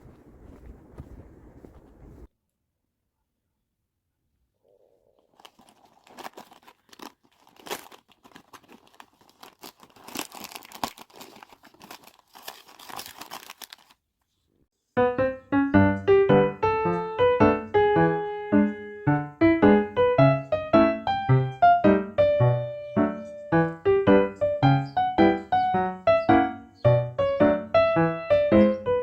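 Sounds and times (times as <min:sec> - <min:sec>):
crinkling and rustling: 0:00.0 - 0:02.3, 0:05.2 - 0:14.6
piano music: 0:15.0 - 0:29.0.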